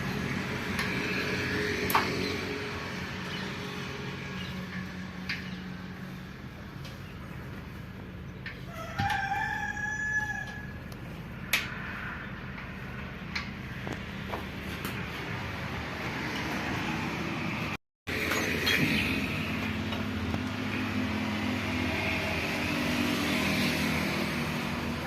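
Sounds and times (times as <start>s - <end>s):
rooster crowing: 8.6s - 10.8s.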